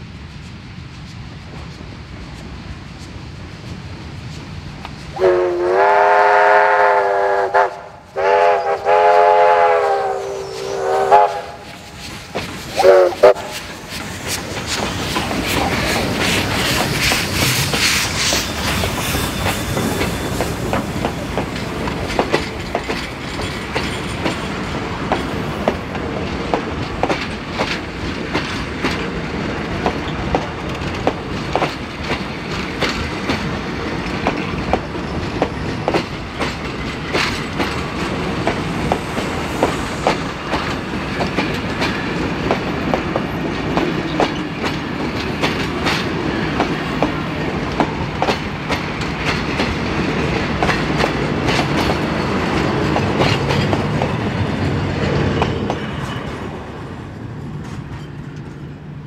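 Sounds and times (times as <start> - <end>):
train carriages rumbling past: 0.0 - 59.0
steam hissing: 0.2 - 57.0
wheels clicking over rail joints: 11.6 - 56.6.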